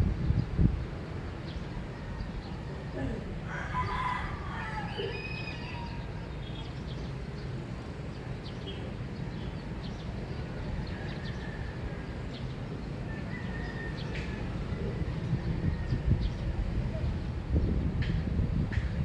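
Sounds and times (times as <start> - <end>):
low background rumble: 0.0 - 19.0
birds chirping: 0.2 - 19.0.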